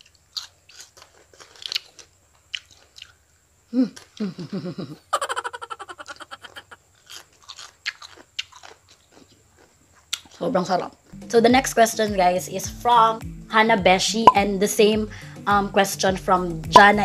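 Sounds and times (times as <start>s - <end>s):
crunching crisp lettuce: 0.0s - 3.2s, 6.6s - 10.6s
person humming with enjoyment: 3.7s - 6.8s.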